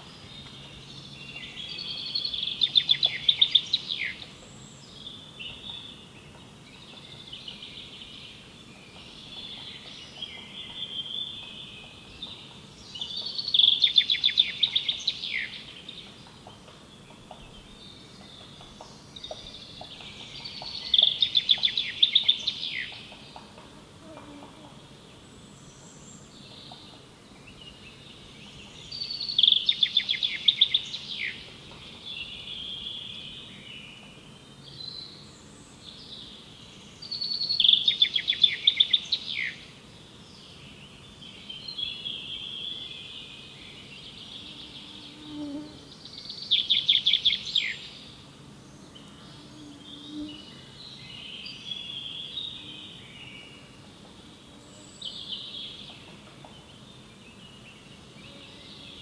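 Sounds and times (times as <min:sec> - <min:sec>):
songbird trilling: 0:37.1 - 0:39.6.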